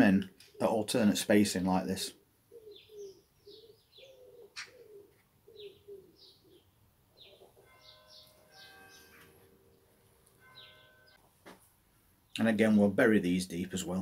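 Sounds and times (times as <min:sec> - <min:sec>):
faint bird chirps: 0:02.5 - 0:11.2.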